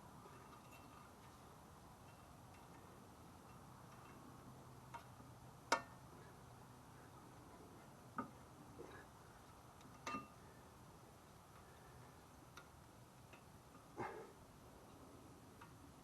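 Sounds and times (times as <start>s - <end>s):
light metallic clicks and taps: 2.0s - 6.0s, 9.4s - 10.4s, 12.4s - 13.9s.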